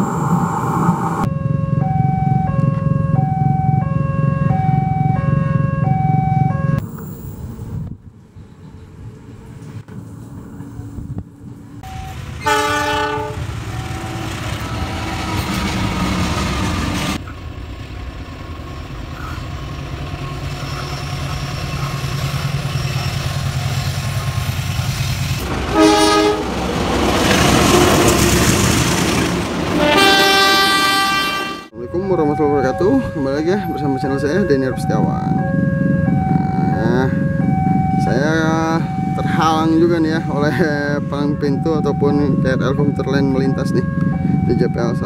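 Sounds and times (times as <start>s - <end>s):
rush of passing train: 0.0s - 3.8s, 6.7s - 31.8s, 32.7s - 45.0s
diesel locomotive rumble: 0.0s - 45.0s
train horn blast: 11.9s - 14.2s, 25.4s - 26.6s, 27.4s - 28.3s, 29.7s - 31.7s.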